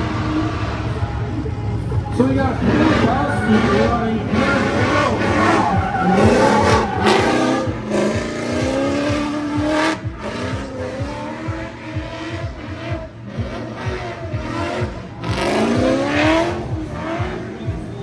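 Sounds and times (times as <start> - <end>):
car engine revving hard: 2.2 - 18.0.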